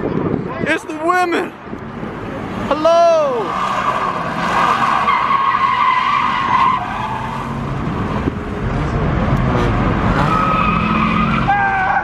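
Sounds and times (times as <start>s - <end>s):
car engine revving: 1.8s - 12.0s
car tyres squealing: 2.2s - 8.3s, 9.4s - 12.0s.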